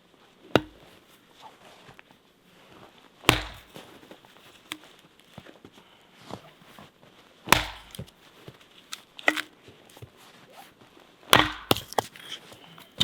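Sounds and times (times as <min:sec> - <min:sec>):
tool striking wood: 0:00.6 - 0:00.9, 0:03.3 - 0:03.8, 0:07.5 - 0:08.1, 0:09.2 - 0:09.5, 0:11.4 - 0:12.1.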